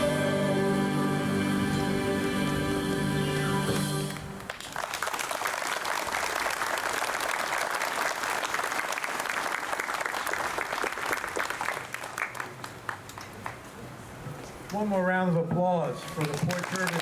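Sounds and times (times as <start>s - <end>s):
choir singing: 0.0s - 4.4s
crowd applauding: 3.4s - 13.6s, 15.9s - 17.0s.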